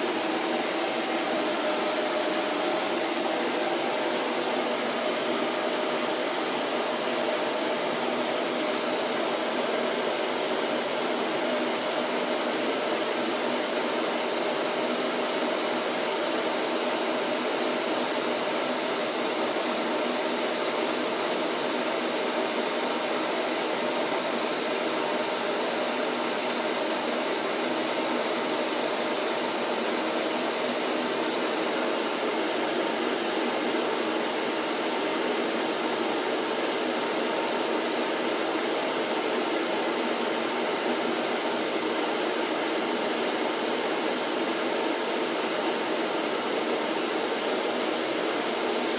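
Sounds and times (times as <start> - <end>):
vacuum cleaner running: 0.0 - 48.9.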